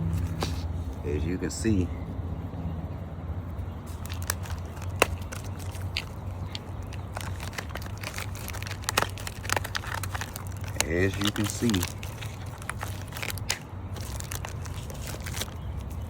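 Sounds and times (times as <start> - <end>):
brake pads clicking and tapping: 3.8 - 16.0.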